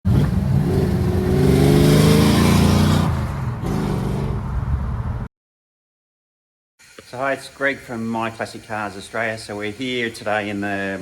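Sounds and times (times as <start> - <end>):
car engine revving: 0.1 - 4.7.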